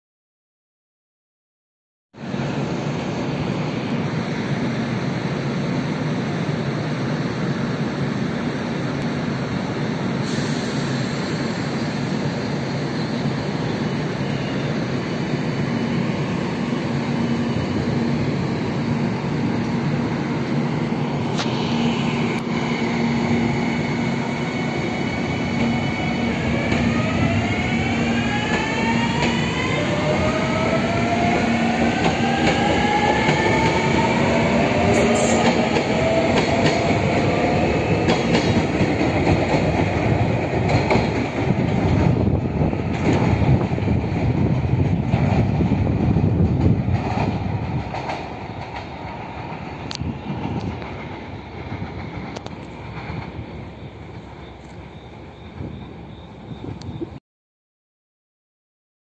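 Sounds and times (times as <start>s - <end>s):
train running hum: 2.2s - 57.2s
wheels rumbling on rails: 15.9s - 57.2s.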